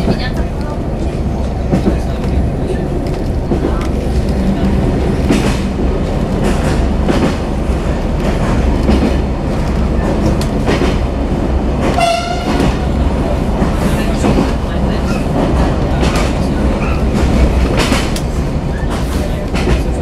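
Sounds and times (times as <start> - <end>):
train rumble with rail clatter: 0.0 - 20.0
train horn blast: 11.9 - 12.8.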